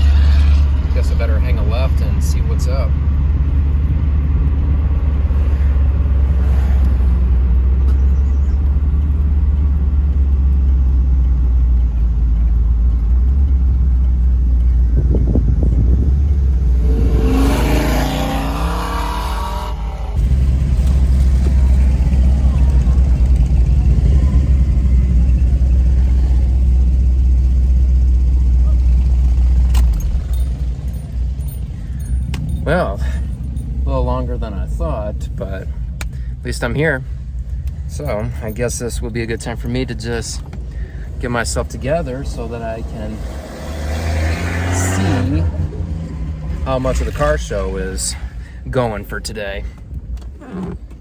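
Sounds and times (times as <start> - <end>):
car engine and road rumble: 0.0 - 51.0
wavering pitched sound: 16.5 - 20.2.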